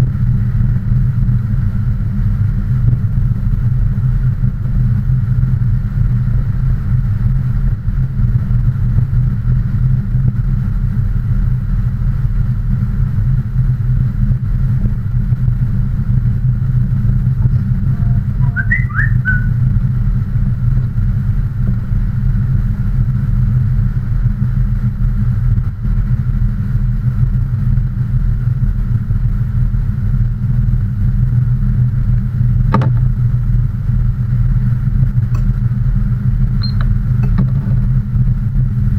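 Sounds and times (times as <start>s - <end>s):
low engine rumble: 0.0s - 38.9s
click: 36.6s - 37.5s.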